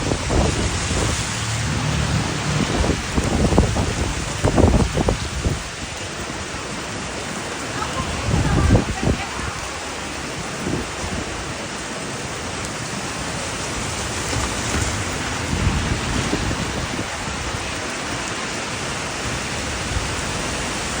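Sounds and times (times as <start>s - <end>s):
low rumble: 0.0s - 5.6s
heavy rain pouring: 0.0s - 21.0s.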